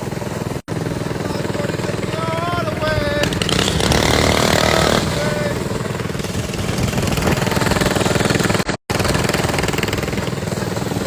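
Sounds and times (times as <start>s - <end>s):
small engine puttering: 0.0s - 11.0s.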